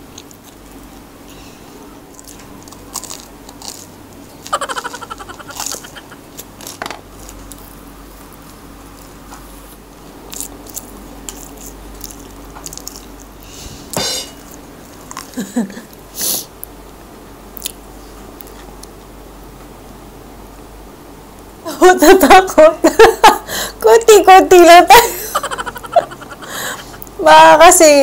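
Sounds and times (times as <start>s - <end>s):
person chewing food: 2.1s - 13.5s, 17.6s - 19.1s
breath sounds: 13.4s - 14.0s, 26.4s - 27.0s.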